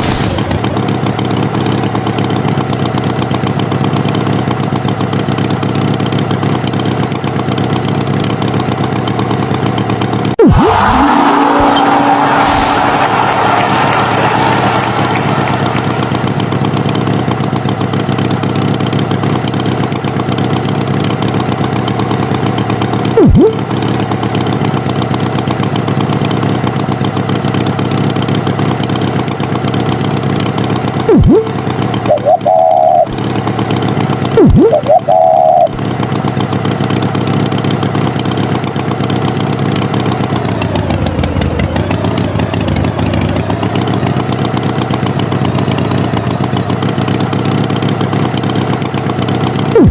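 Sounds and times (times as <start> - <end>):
cartoon tractor engine running: 0.0 - 49.9
short wavering tones: 10.4 - 12.2, 23.2 - 23.6, 31.1 - 33.2, 34.4 - 35.8
boing-like swoops: 10.4 - 13.0, 23.2 - 23.6, 31.1 - 33.2, 34.4 - 35.8.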